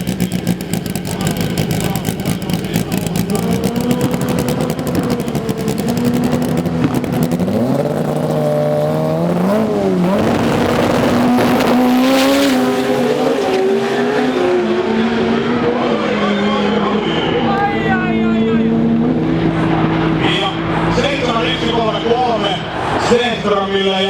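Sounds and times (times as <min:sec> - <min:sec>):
drag racing car engines revving: 0:00.0 - 0:24.0.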